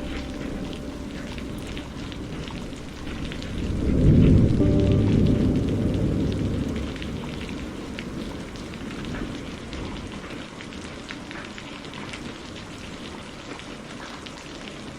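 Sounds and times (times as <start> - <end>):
low thunder rumble: 0.0 - 10.6
raindrops ticking: 0.0 - 14.9
steady rain falling: 0.0 - 14.9.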